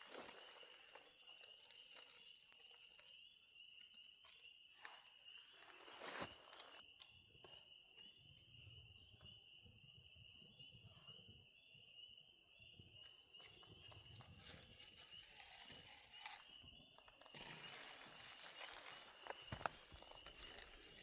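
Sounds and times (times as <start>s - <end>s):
crickets trilling: 14.5s - 21.0s.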